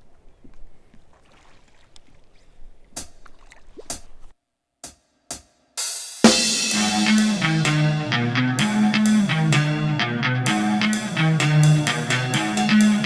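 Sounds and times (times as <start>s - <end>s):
hip-hop rock background music: 6.2s - 13.0s.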